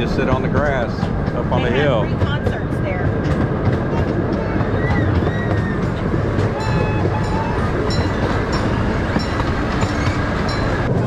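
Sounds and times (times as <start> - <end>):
train wheels rumbling on rails: 0.0 - 11.0
high-pitched squeaks: 4.4 - 10.8.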